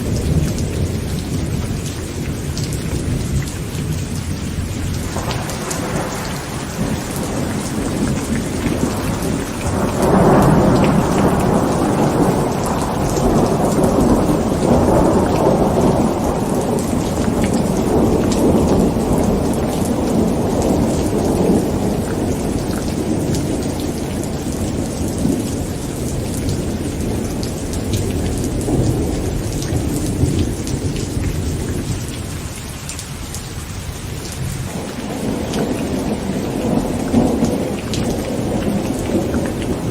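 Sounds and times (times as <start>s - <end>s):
rolling thunder: 0.0s - 32.4s, 34.1s - 39.9s
heavy rain on a tent: 0.0s - 39.9s.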